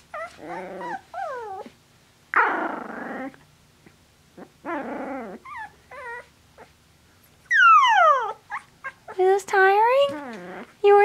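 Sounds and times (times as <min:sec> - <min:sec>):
puppies growling: 0:00.0 - 0:03.5, 0:04.3 - 0:06.8, 0:07.5 - 0:11.0
puppy whining: 0:00.0 - 0:03.5, 0:04.4 - 0:06.8, 0:07.4 - 0:11.0
puppies yipping: 0:00.1 - 0:01.7, 0:07.5 - 0:09.2.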